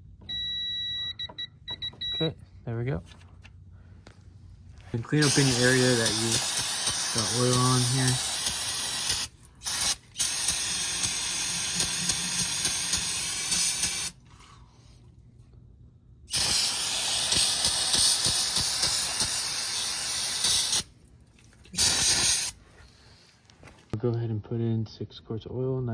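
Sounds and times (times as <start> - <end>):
aerosol spray can hissing: 5.2 - 14.2, 16.3 - 20.9, 21.7 - 22.6.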